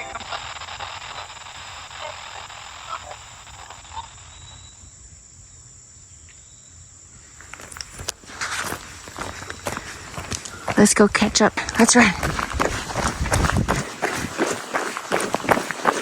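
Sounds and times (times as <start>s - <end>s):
high-pitched insect chorus: 0.0s - 15.6s
footsteps on a trail: 7.4s - 16.0s.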